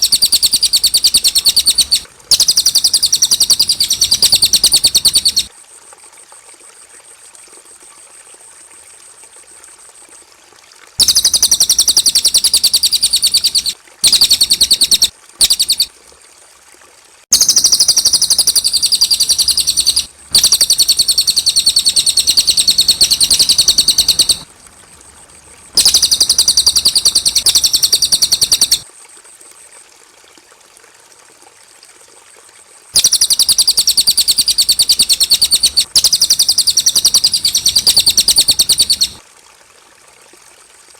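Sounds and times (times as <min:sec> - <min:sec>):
bird singing rapid high trill: 0:00.0 - 0:05.5, 0:11.0 - 0:15.9, 0:17.4 - 0:24.5, 0:25.8 - 0:28.8, 0:33.0 - 0:39.2
thin steady high tone: 0:00.0 - 0:05.5, 0:11.0 - 0:15.9, 0:17.3 - 0:24.5, 0:25.1 - 0:28.8, 0:33.0 - 0:39.2.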